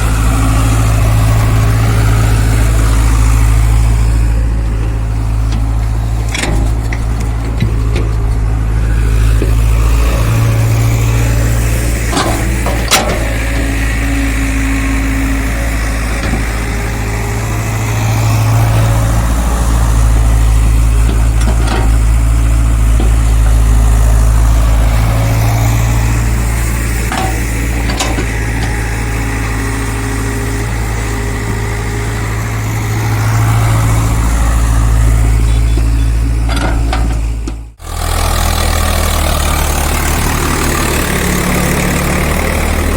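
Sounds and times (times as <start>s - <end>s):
diesel engine running: 0.0s - 42.9s
short metal clanks: 12.0s - 13.7s.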